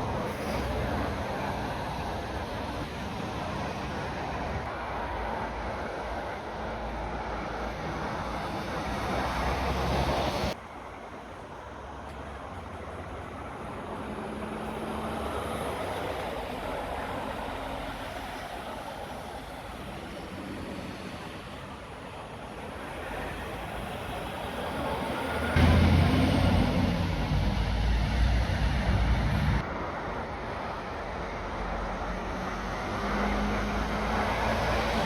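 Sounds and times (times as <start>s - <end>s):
passing road traffic rumble: 0.0s - 35.0s
vehicle engine cutting off: 25.6s - 29.6s.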